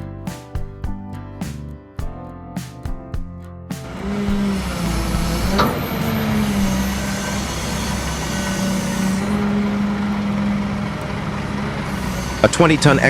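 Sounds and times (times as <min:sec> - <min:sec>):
diesel engine drone: 0:03.8 - 0:13.0.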